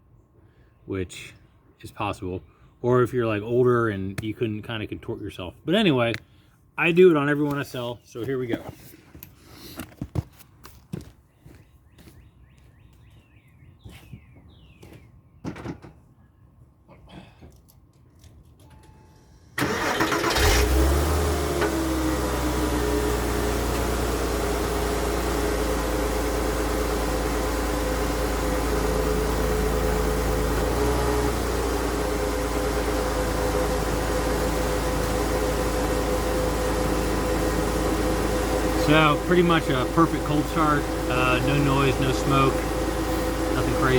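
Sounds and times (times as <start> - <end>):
starter motor cranking: 19.6 - 22.1, 32.8 - 43.9
car engine idling: 19.6 - 43.9.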